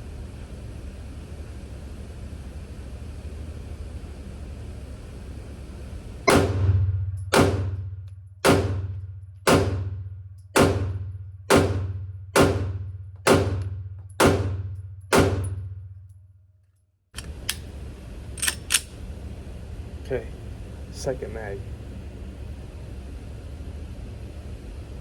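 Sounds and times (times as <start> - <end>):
steady low hum: 0.0 - 16.3, 17.2 - 25.0
pistol shots echoing indoors: 6.2 - 16.1.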